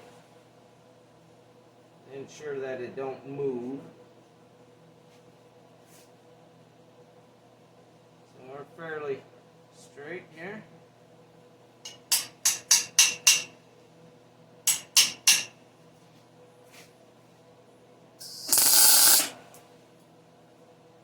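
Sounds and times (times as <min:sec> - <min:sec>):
metal tapping on steel: 0:11.9 - 0:13.5, 0:14.7 - 0:15.5
welder hissing crackle: 0:18.2 - 0:19.5.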